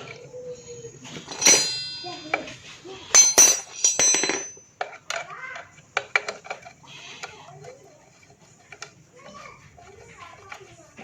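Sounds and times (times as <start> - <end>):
metal tools clinking: 0.5 - 5.2.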